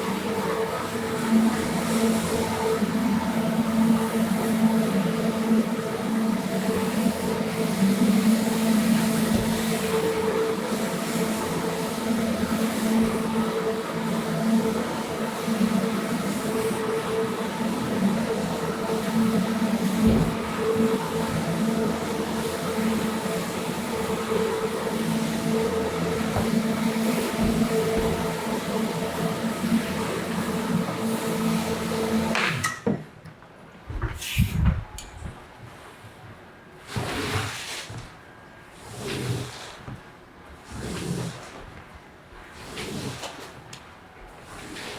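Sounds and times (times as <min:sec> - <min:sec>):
carpet cleaning machine running: 0:00.0 - 0:32.6.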